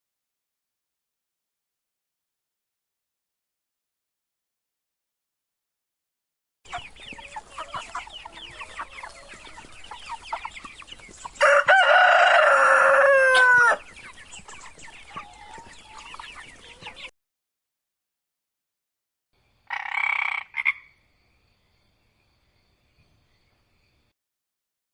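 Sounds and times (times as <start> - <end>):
chickens clucking: 6.7 - 17.1
rooster crowing: 7.3 - 9.7, 11.4 - 13.9.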